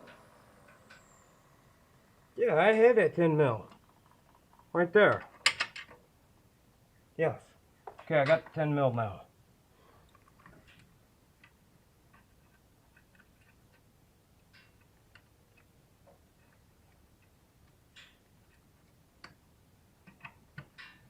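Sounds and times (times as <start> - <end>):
hand tools clicking and tapping: 20.0 - 21.0.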